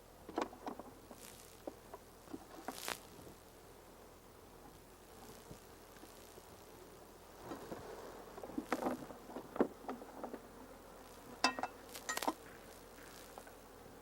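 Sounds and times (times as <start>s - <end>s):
honeybees buzzing: 0.0s - 14.0s
sharp ringing clicks and knocks: 11.4s - 12.4s.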